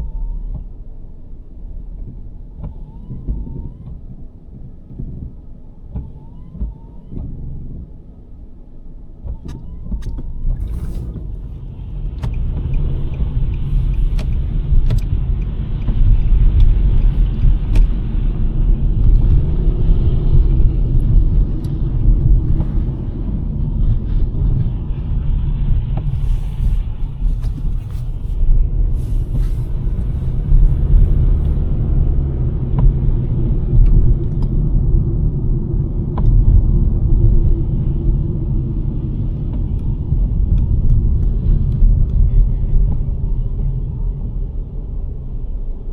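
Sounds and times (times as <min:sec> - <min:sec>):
tyre and road rumble: 0:00.0 - 0:45.9.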